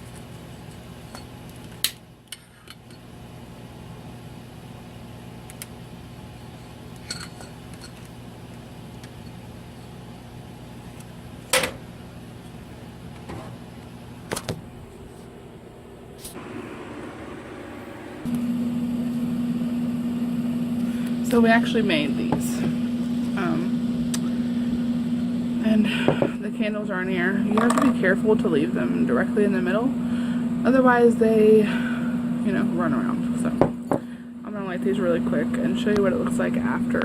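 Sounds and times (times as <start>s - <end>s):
low hum: 11.9s - 37.0s.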